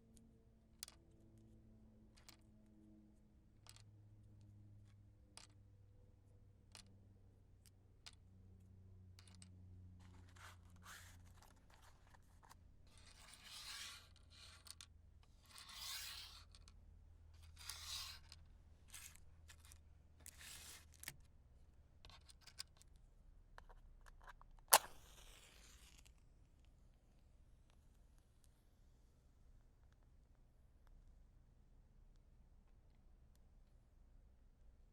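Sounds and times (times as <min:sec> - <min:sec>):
match scratching on matchbox: 0:10.0 - 0:14.8, 0:15.4 - 0:16.7, 0:17.4 - 0:21.1, 0:23.6 - 0:26.2
match striking and hissing: 0:24.7 - 0:26.1.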